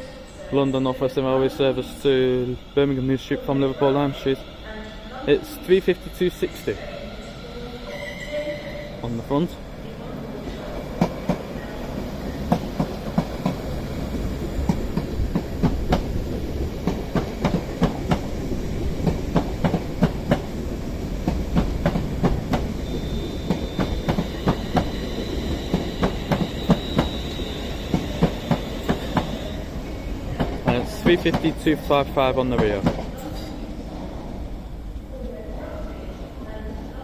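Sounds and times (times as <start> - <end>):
train rumble: 0.0 - 37.0
train wheels clicking over track: 10.8 - 29.6, 30.4 - 31.7.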